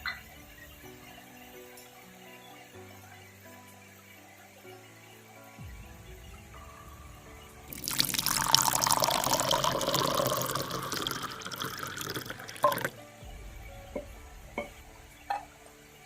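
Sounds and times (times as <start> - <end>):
water pouring into container: 7.6 - 13.0.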